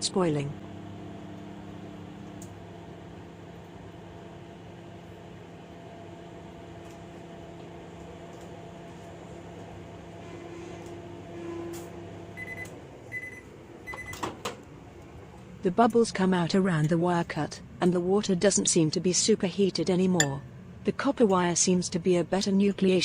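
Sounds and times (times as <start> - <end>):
microwave oven humming: 0.0 - 23.0
microwave high beep: 12.4 - 14.2.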